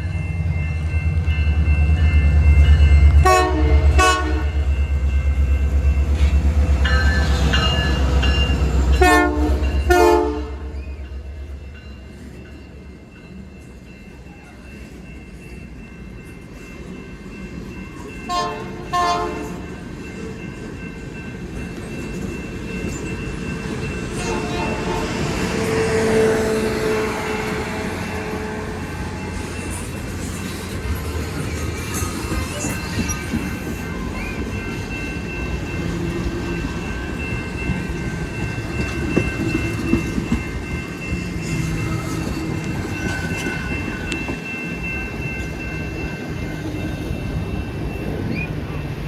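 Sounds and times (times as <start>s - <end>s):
train rumbling past: 0.0s - 49.0s
train horn short toots: 3.2s - 4.5s, 9.0s - 10.7s, 18.3s - 19.6s, 24.2s - 28.8s.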